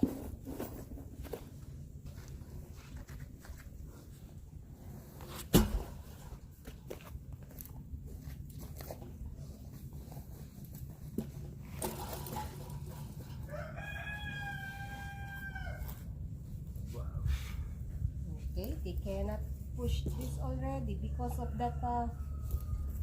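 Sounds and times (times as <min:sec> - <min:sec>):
rooster crowing: 0:13.4 - 0:16.0, 0:21.1 - 0:23.0.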